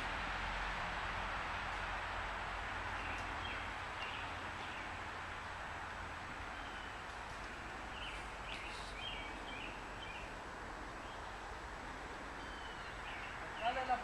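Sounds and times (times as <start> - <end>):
outdoor background hiss: 0.0 - 14.0
bird chirps: 6.5 - 7.1, 7.9 - 10.3, 12.4 - 13.8.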